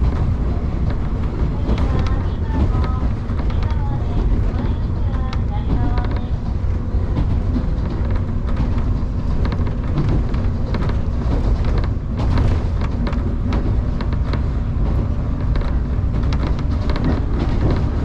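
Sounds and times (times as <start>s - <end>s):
irregular clicks and rattles: 0.0s - 18.0s
train wheels rumbling on rail: 0.0s - 18.0s.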